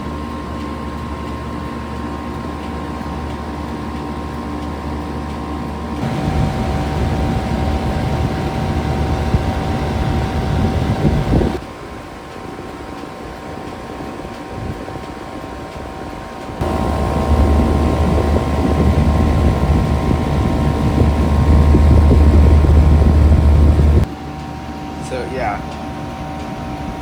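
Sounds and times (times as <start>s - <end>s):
heat pump fan and compressor hum: 0.0s - 27.0s
deep rumble: 6.0s - 11.6s, 16.6s - 24.1s.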